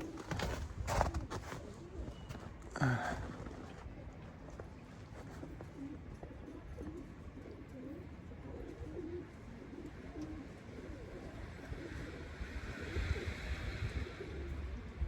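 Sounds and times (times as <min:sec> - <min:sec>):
pigeons cooing: 0:05.3 - 0:15.0.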